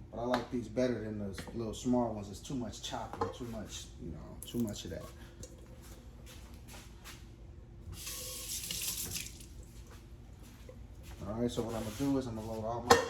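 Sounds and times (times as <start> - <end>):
tap running into a sink: 8.0 - 9.5.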